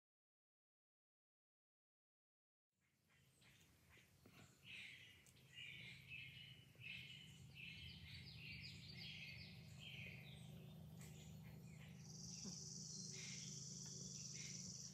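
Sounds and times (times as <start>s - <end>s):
bird chirping: 2.8s - 14.9s
low steady hum: 3.2s - 14.9s.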